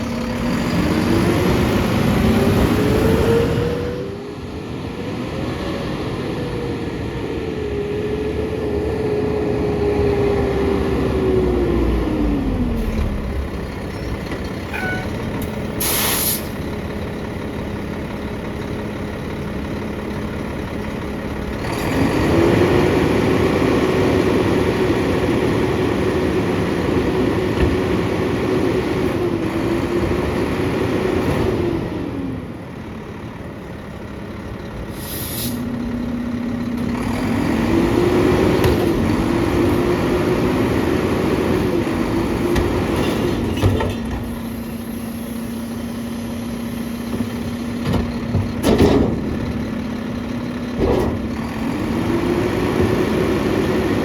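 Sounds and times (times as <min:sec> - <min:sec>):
garbage truck diesel engine revving: 0:00.0 - 0:54.0
air hiss: 0:15.8 - 0:16.6, 0:34.9 - 0:35.7.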